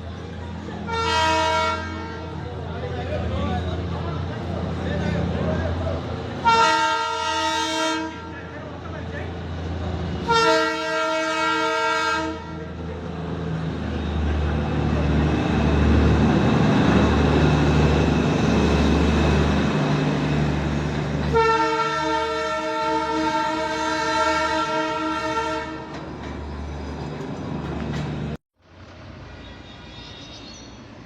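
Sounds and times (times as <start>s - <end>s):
diesel locomotive drone: 0.0s - 31.0s
locomotive horn blast: 0.9s - 2.4s, 6.4s - 8.5s, 10.2s - 12.8s, 21.3s - 26.0s.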